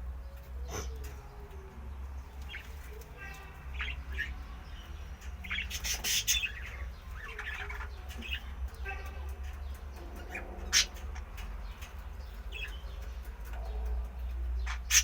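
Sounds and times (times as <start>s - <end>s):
birds chirping: 0.0s - 15.0s
bird squawking harshly: 5.6s - 6.6s, 10.7s - 11.0s, 14.7s - 15.0s.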